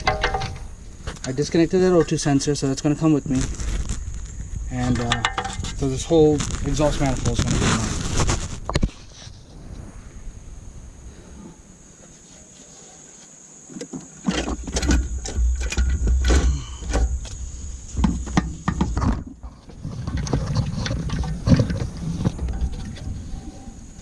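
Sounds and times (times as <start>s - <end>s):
metal knocks and clanks: 0.0s - 2.2s, 4.9s - 5.8s.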